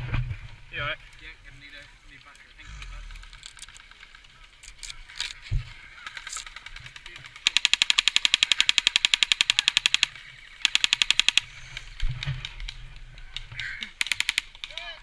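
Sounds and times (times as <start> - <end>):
airsoft gun firing bursts: 6.5 - 11.5, 14.0 - 14.8.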